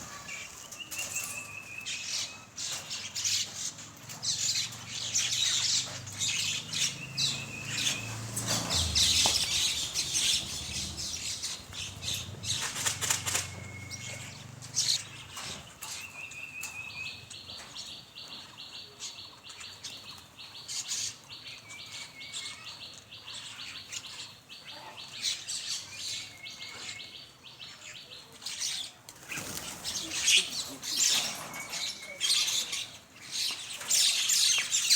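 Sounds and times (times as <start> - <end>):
wings fluttering: 2.6 - 16.8, 29.1 - 34.9
mynas calling and chattering: 4.4 - 15.5, 29.4 - 34.9.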